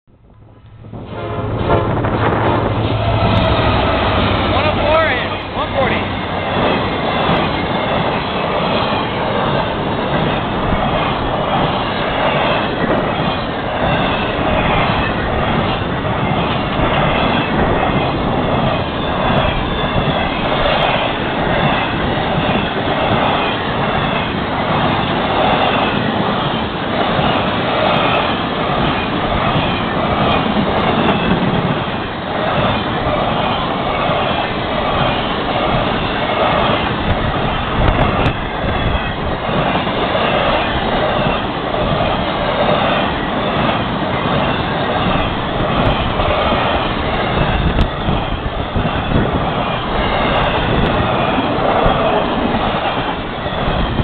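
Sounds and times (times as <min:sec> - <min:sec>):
train wheels rolling on rails: 0:00.1 - 0:54.0.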